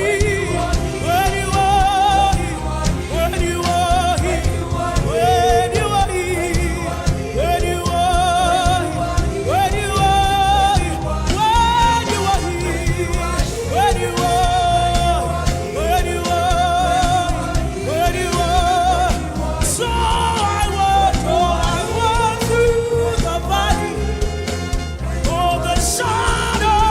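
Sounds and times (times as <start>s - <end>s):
band with steady low beat: 0.0s - 26.9s
lead voice singing with vibrato: 0.0s - 26.9s.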